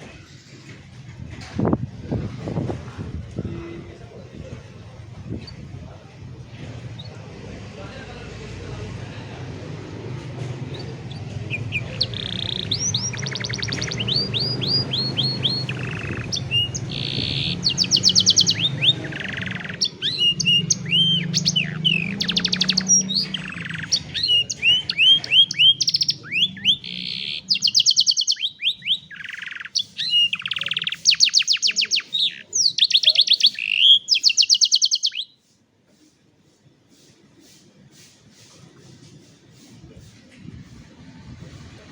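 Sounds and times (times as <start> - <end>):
canary singing: 10.6 - 35.4.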